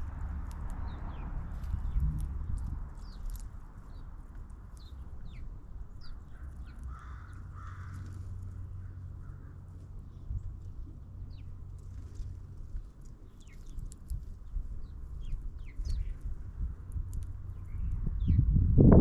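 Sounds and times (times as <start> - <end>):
birds chirping: 0.0 - 16.6, 17.2 - 18.5
steady low rumble: 0.0 - 19.0
harsh bird calls: 4.8 - 8.2.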